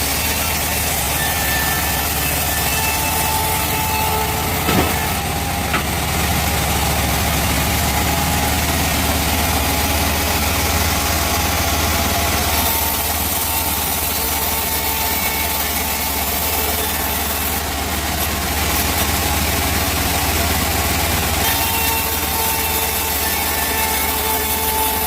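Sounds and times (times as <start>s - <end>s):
band saw humming: 0.0s - 25.0s
short knocks: 4.6s - 6.1s.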